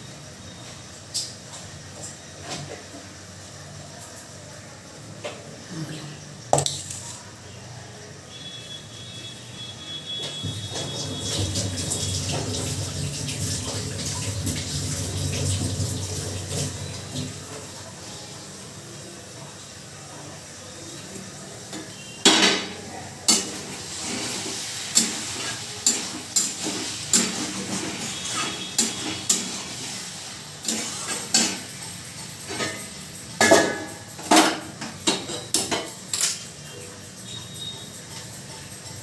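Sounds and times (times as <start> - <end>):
dishes and utensils clattering: 21.8 - 29.8, 30.6 - 39.0.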